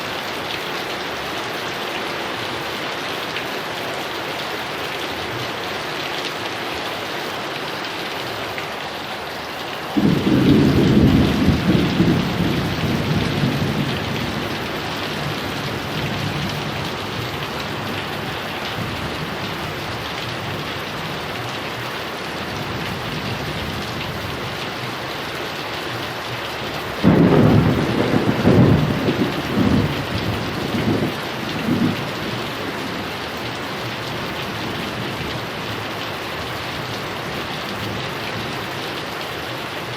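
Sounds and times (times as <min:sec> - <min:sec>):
heavy rain: 0:00.0 - 0:39.9
thunder: 0:10.0 - 0:15.4, 0:27.0 - 0:32.4.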